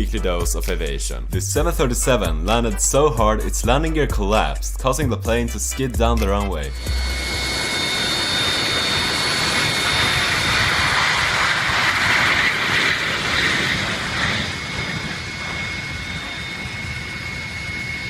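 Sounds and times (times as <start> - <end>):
jet engines whining and roaring: 5.8 - 18.0.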